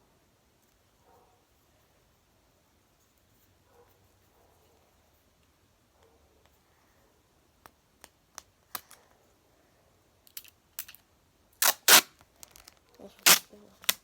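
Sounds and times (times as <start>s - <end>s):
tape and paper crackling: 11.6s - 14.0s.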